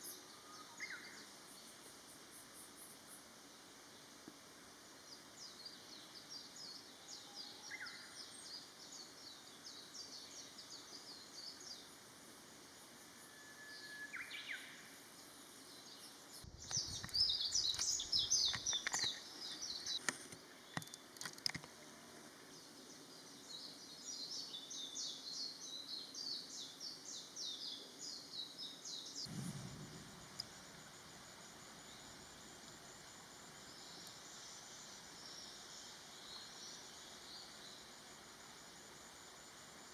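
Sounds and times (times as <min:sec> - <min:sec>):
brief whistle: 0:13.3 - 0:14.3
low thump: 0:29.3 - 0:31.0.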